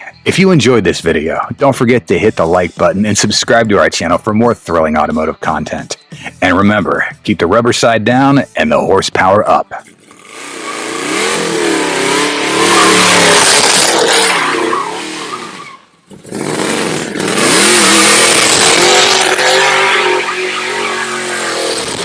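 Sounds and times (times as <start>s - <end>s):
car engine revving: 10.0s - 22.0s
tyres squealing: 12.0s - 15.9s, 17.3s - 22.0s.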